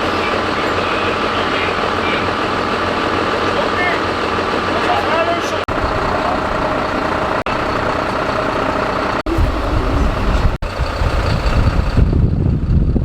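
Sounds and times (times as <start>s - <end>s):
heavy vehicle engine running: 0.0s - 13.0s
wind buffeting microphone: 8.8s - 13.0s.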